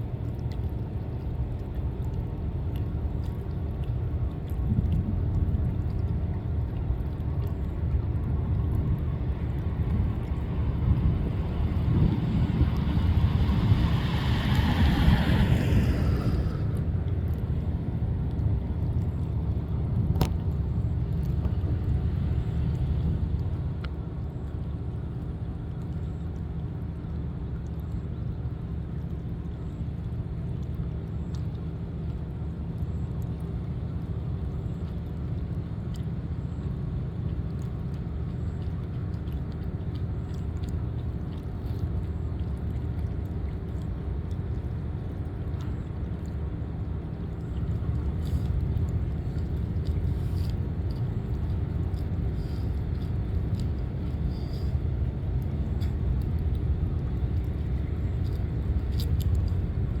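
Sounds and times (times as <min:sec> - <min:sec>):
low engine rumble: 0:00.0 - 1:00.0.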